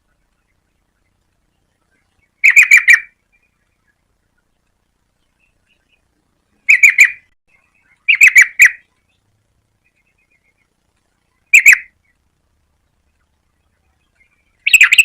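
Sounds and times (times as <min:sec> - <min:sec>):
bird chattering calls: 0:01.9 - 0:04.0, 0:06.6 - 0:09.2, 0:11.3 - 0:12.2, 0:13.2 - 0:15.0.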